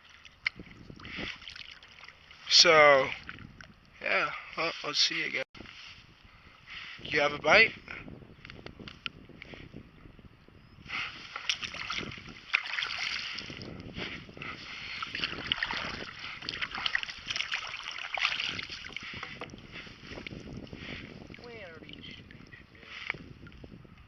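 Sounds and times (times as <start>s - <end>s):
paddle splashing water: 0.0s - 3.7s, 11.0s - 23.4s.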